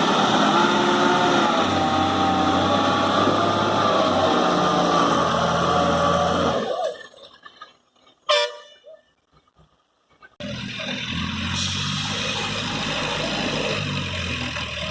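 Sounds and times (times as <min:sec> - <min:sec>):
vehicle horn toot: 0:08.3 - 0:08.9.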